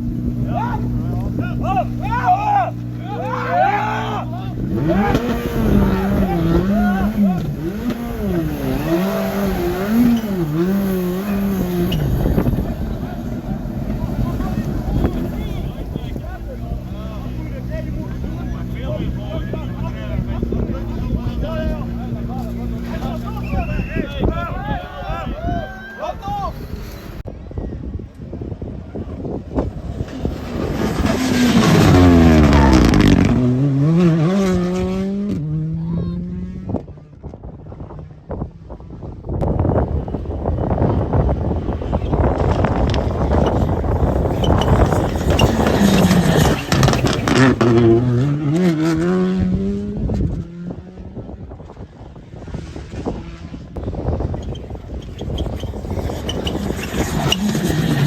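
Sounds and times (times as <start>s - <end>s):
rally car engine revving: 0.0s - 23.8s, 29.0s - 37.4s, 38.2s - 58.0s
rush of noise: 0.0s - 34.7s.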